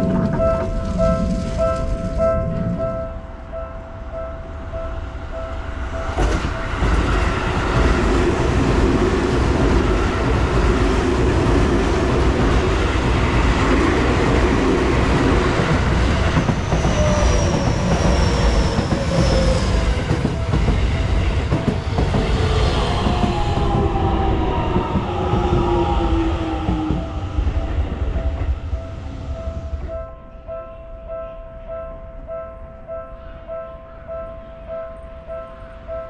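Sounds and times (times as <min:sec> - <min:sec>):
crossing warning tones: 0:00.0 - 0:30.7
train wheels clattering: 0:06.1 - 0:30.0.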